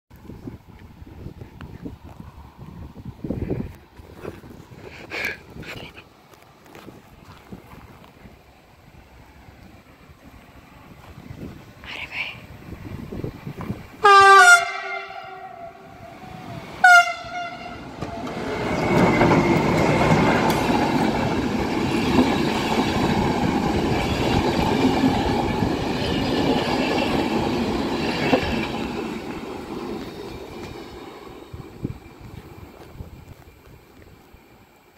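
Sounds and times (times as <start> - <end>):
train horn blasts: 14.0 - 18.4
train wheels running over rails: 17.8 - 34.9.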